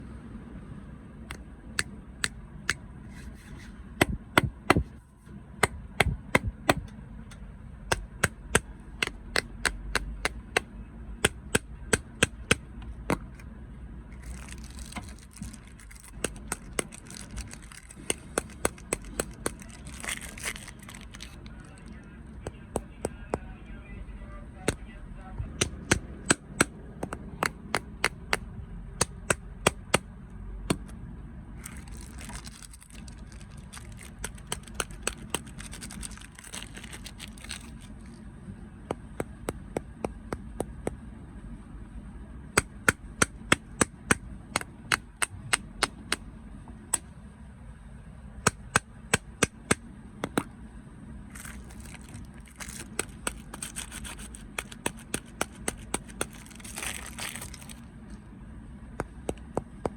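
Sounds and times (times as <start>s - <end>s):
crunching snacks: 14.2s - 22.0s, 31.6s - 38.2s, 51.3s - 57.9s
crinkly rustling: 14.2s - 22.1s, 31.6s - 38.2s, 51.3s - 57.9s.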